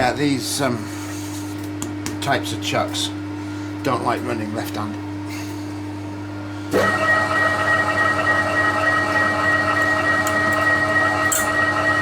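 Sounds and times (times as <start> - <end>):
milling machine spindle gear whine: 6.7 - 12.0.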